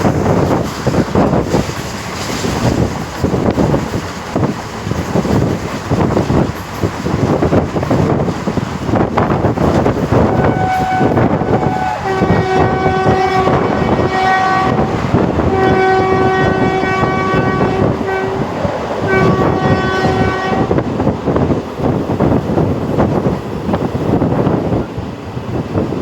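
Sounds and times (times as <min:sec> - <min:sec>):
moving train running noise: 0:00.0 - 0:26.0
train horn blasts: 0:10.1 - 0:20.9.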